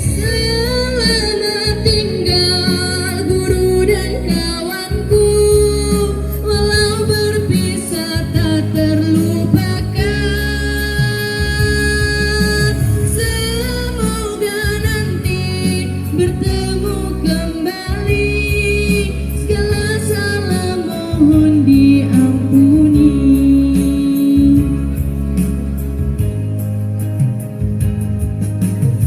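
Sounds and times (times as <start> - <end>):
person singing: 0.0 - 25.1
guitar accompaniment: 0.0 - 29.0.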